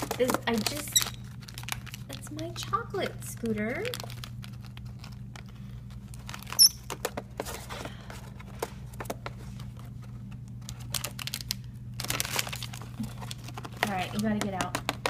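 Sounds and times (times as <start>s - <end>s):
bird rustling snack wrappers: 0.0s - 15.0s
steady low hum: 0.0s - 15.0s
high-pitched bird chirp: 6.6s - 6.8s.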